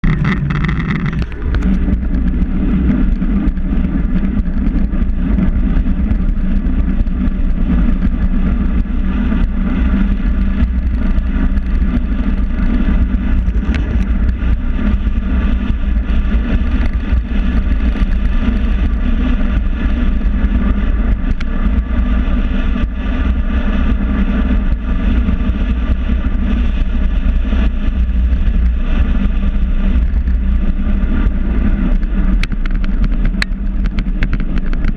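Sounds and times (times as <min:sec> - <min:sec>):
wind and road noise: 0:00.0 - 0:34.9.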